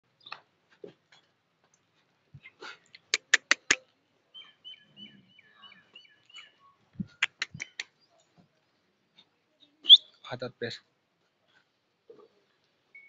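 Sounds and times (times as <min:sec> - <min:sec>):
sharp clicks: 0:03.0 - 0:03.8, 0:07.2 - 0:07.9
small bird chirping: 0:03.2 - 0:08.3, 0:09.6 - 0:10.2.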